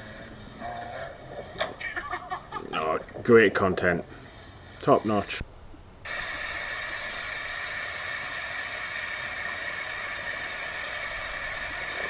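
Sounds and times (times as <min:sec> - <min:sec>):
dirt bike engine running: 0:06.1 - 0:12.0.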